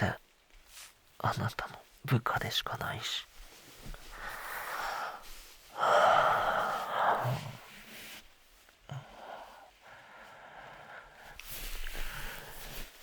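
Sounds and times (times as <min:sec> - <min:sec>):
man breathing: 0:04.0 - 0:13.0.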